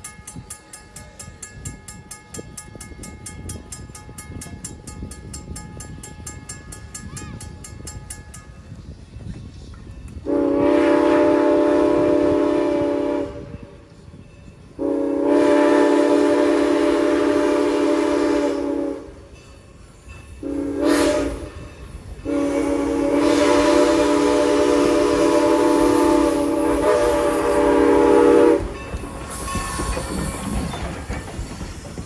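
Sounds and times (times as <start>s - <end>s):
steam whistle blasts: 10.2s - 13.7s, 14.8s - 19.3s, 20.4s - 28.8s.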